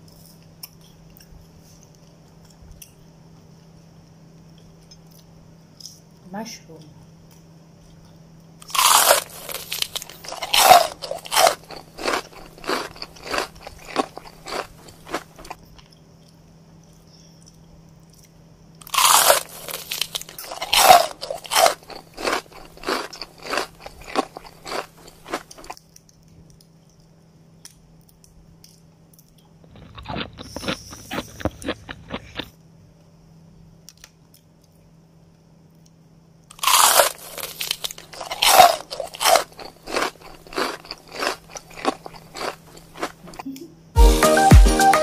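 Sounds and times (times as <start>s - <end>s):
wet crunchy chewing: 7.9s - 27.1s, 28.0s - 32.5s, 36.5s - 43.4s.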